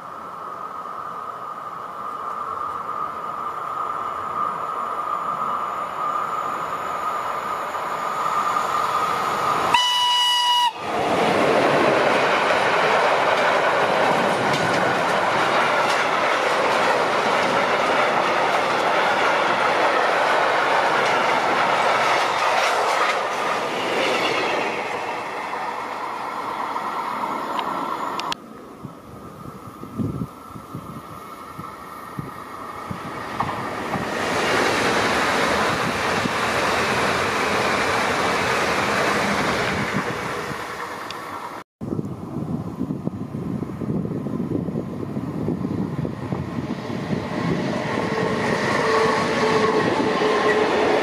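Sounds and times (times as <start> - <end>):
steady high tone: 2.8 - 10.8
locomotive horn blast: 9.7 - 10.9, 48.0 - 51.0
train wheels clattering: 11.0 - 25.4.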